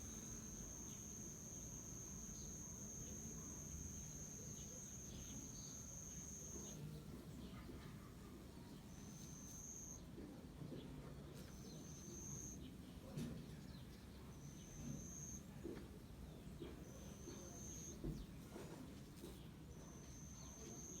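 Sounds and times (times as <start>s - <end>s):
insect chirping: 0.0s - 6.9s, 8.9s - 10.1s, 11.5s - 12.6s, 14.4s - 15.5s, 16.9s - 18.0s, 19.8s - 21.0s
low background noise: 0.0s - 21.0s.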